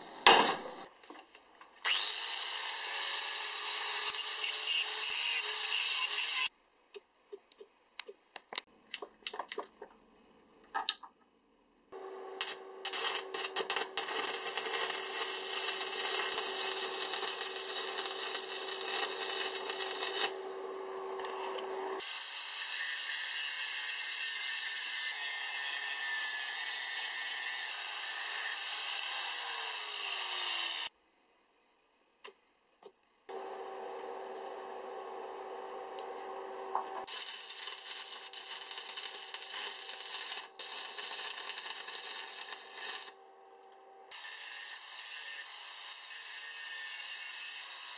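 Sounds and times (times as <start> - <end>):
arc welder crackling: 12.0 - 22.0, 33.3 - 43.8
angle grinder grinding: 12.0 - 23.4, 33.3 - 43.2
steady hum: 20.3 - 22.0, 33.3 - 37.1.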